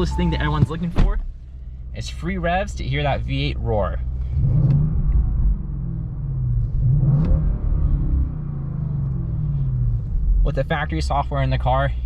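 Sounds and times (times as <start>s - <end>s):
car engine revving: 4.0s - 10.8s.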